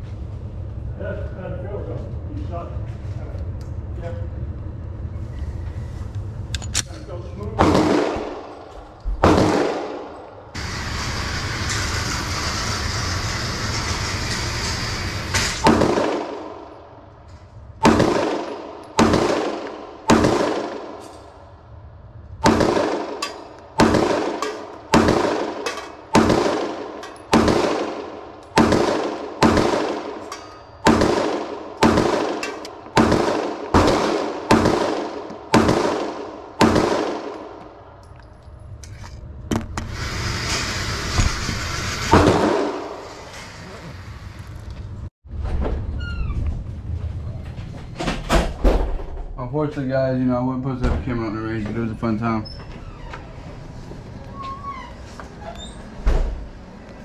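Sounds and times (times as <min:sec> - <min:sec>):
steady noise: 0:07.1 - 0:38.0
gunshots with ringing tail: 0:07.6 - 0:10.6, 0:15.6 - 0:16.9, 0:17.8 - 0:21.1, 0:22.4 - 0:37.7, 0:42.1 - 0:43.1.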